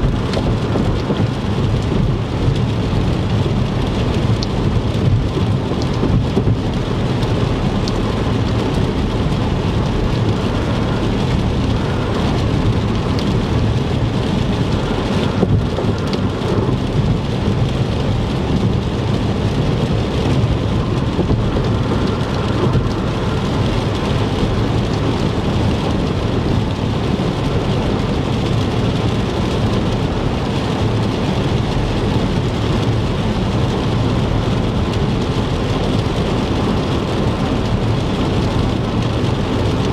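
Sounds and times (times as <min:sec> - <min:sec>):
heavy rain: 0:00.0 - 0:39.9
low road rumble: 0:00.0 - 0:39.9.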